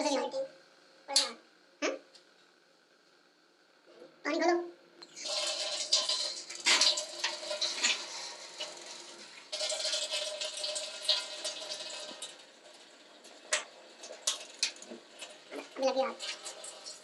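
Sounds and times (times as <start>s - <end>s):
water rushing from a tap: 5.0s - 17.0s.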